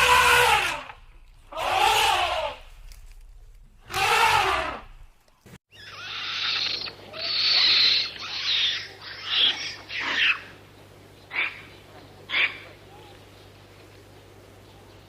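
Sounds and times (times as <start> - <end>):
animal drawn-out cry: 0.0 - 2.7, 3.8 - 5.1, 5.7 - 10.6, 11.3 - 13.2
hoarse hissing animal calls: 1.5 - 2.7, 5.8 - 10.5.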